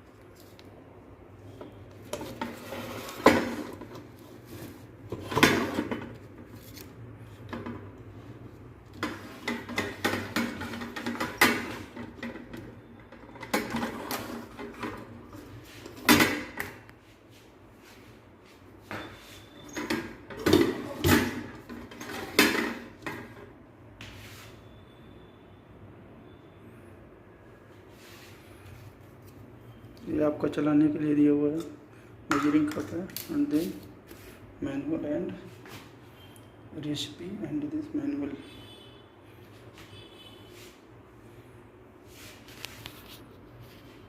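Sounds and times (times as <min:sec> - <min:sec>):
pot and accessories clattering: 0:09.0 - 0:12.6.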